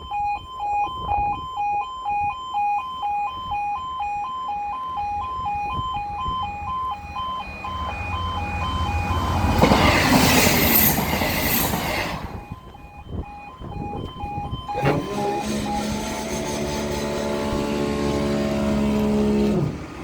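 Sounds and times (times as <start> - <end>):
level crossing alarm two-tone warning: 0.0 - 20.0
train passing: 7.0 - 12.8, 14.7 - 20.0.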